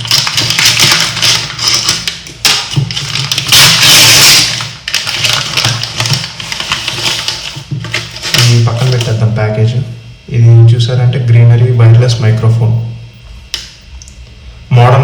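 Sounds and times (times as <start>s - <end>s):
package tearing rip: 0.0s - 7.5s
package crinkling and rustling: 0.0s - 9.2s.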